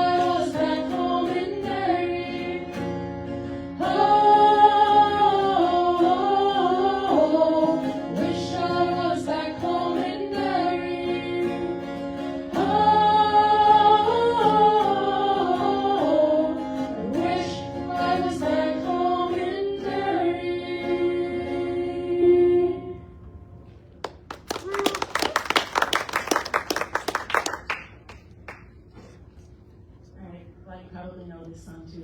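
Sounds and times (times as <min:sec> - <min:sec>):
vocal group singing in harmony: 0:00.0 - 0:22.8.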